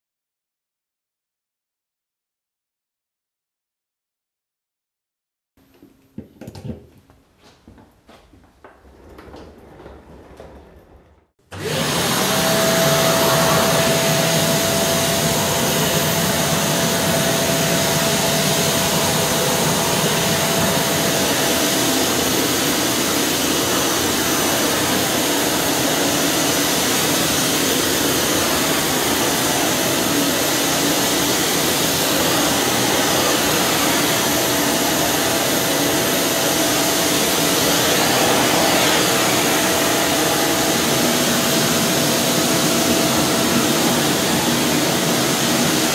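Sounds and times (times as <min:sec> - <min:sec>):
vacuum cleaner running: 0:11.4 - 0:45.9.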